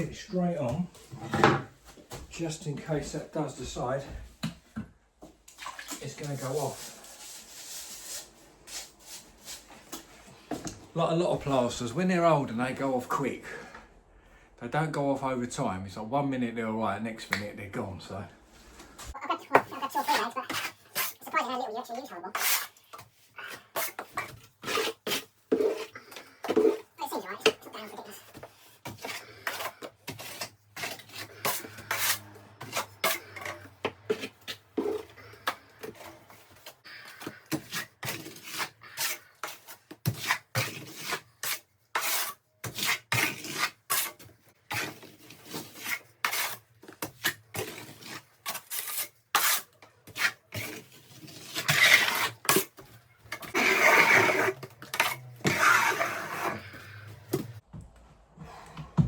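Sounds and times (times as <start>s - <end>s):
trowel scraping plaster: 5.9s - 10.3s, 19.4s - 57.6s.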